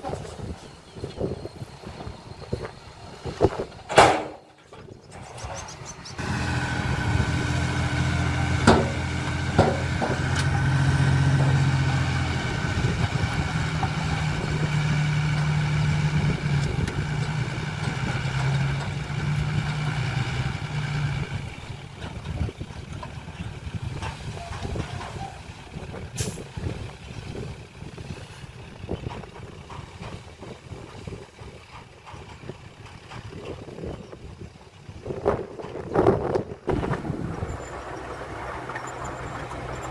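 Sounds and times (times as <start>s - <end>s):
heavy machine diesel engine running: 6.2s - 33.4s, 36.7s - 39.9s.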